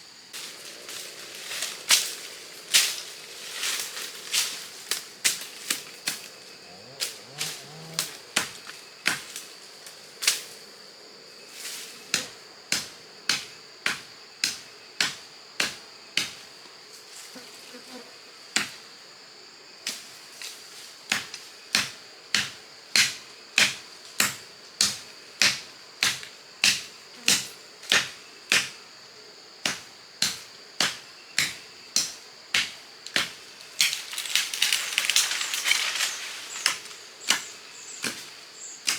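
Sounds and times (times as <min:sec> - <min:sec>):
high insect buzz: 0:00.0 - 0:38.9
hand tool striking wood: 0:08.4 - 0:09.4, 0:21.1 - 0:28.8, 0:29.6 - 0:34.1, 0:36.6 - 0:38.9.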